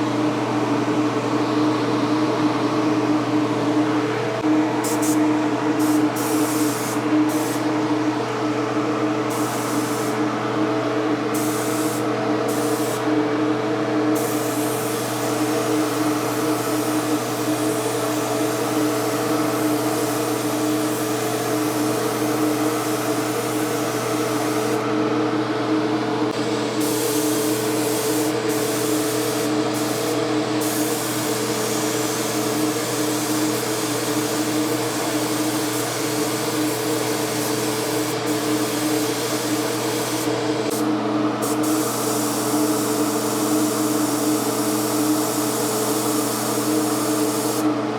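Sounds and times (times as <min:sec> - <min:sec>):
paint spray gun hissing: 0:04.8 - 0:05.2, 0:05.8 - 0:07.7, 0:09.3 - 0:10.2, 0:11.4 - 0:13.1, 0:14.2 - 0:24.8, 0:26.4 - 0:47.8.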